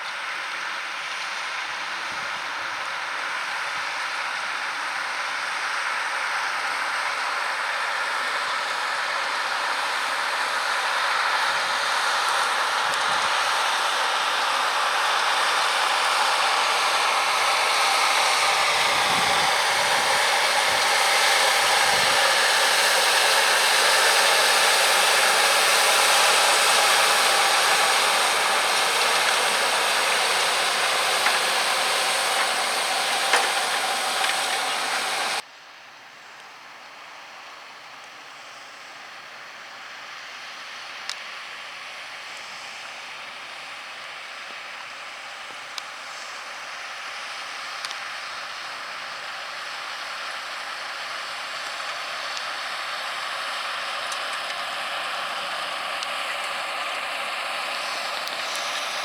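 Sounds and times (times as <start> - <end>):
tractor engine droning with whine: 0.0 - 35.4, 37.8 - 59.0.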